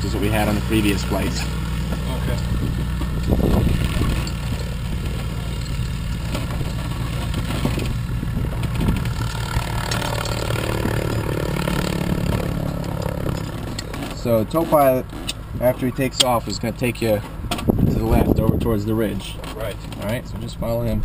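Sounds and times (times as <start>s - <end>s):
aircraft engine idling: 0.0s - 16.6s.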